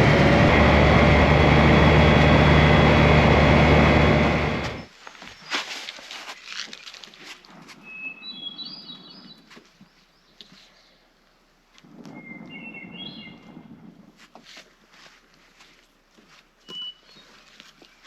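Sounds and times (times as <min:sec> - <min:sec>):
low background rumble: 0:00.0 - 0:04.9
songbird whistling: 0:07.8 - 0:09.4, 0:12.2 - 0:13.5, 0:16.6 - 0:17.4.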